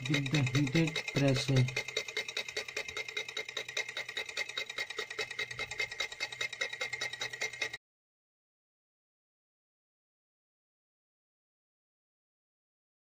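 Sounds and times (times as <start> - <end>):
small steam motor ticking and whining: 0.0 - 7.8.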